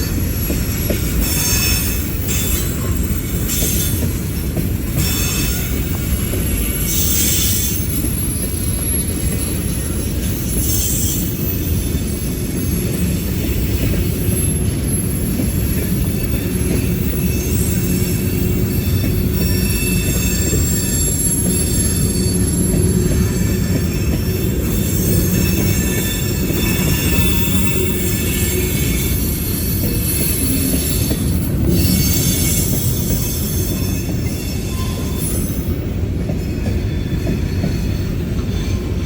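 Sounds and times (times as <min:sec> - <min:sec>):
train rumbling on rails: 0:00.0 - 0:39.0
high-pitched wheel squeal: 0:05.0 - 0:35.8.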